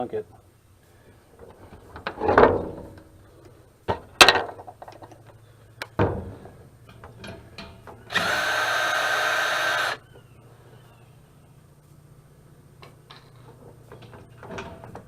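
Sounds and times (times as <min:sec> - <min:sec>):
metal clanks: 0:05.9 - 0:08.1, 0:13.1 - 0:15.0
power drill spinning off nut: 0:08.1 - 0:10.0.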